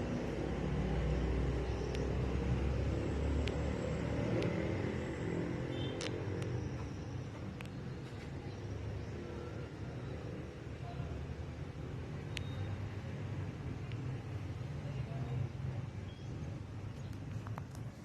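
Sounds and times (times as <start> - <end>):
engine rumbling: 0.0 - 18.0
light sharp ticks: 3.4 - 3.6, 4.4 - 4.6, 5.9 - 7.8, 13.8 - 14.1.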